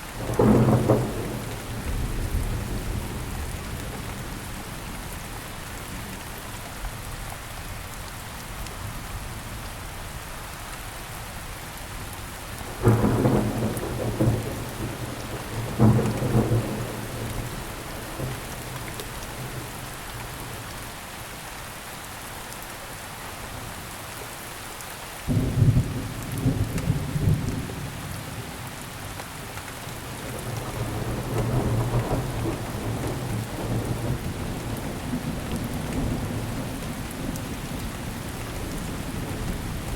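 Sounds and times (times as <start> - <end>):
steady rain: 0.0 - 39.9
thunder cracking and rumbling: 0.2 - 5.1, 12.7 - 20.6, 30.0 - 39.9.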